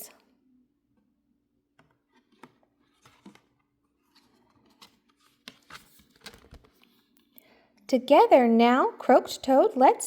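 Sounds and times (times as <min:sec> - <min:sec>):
paper pages rustling and turning: 0:01.8 - 0:07.2.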